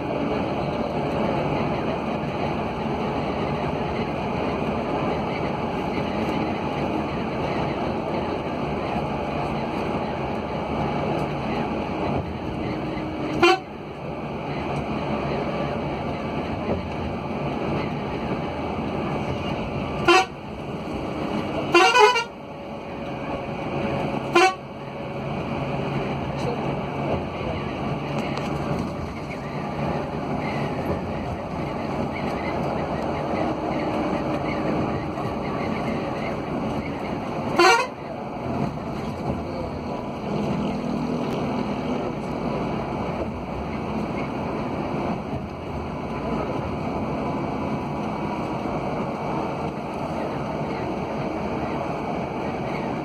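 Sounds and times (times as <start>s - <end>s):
road and engine noise: 0.0s - 53.0s
vehicle rumble: 0.0s - 53.0s
vehicle horn honking: 13.3s - 13.7s, 20.0s - 20.4s, 21.7s - 22.4s, 24.3s - 24.6s, 37.6s - 38.0s.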